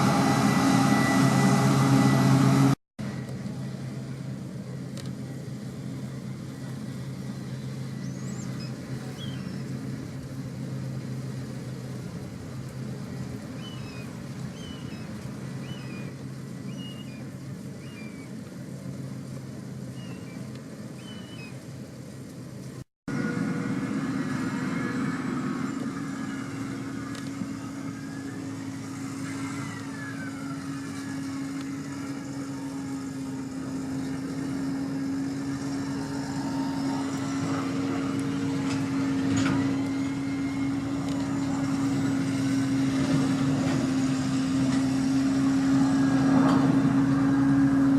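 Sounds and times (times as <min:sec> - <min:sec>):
loud steady drone: 0:00.0 - 0:19.9, 0:23.1 - 0:47.9
farm machinery diesel engine hum: 0:00.0 - 0:47.9.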